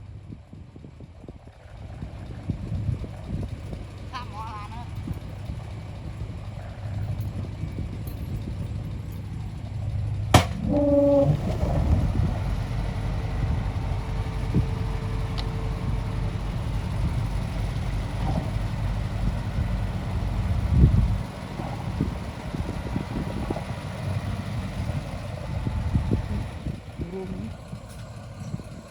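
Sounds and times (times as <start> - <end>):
heavy diesel engine running: 0.0 - 28.9
sharp metallic knock: 10.4 - 10.8
short pitched tone: 10.6 - 11.8.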